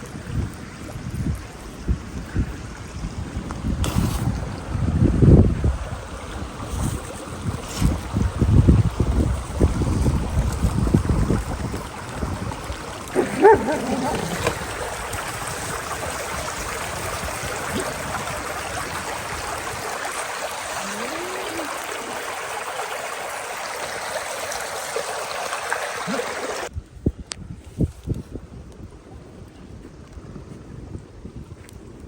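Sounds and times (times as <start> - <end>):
stream water rushing: 4.2 - 26.7.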